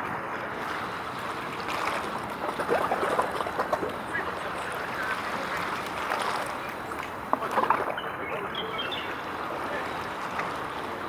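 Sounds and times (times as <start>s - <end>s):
outdoor background noise: 0.0s - 11.0s
faint voices talking: 2.8s - 11.0s.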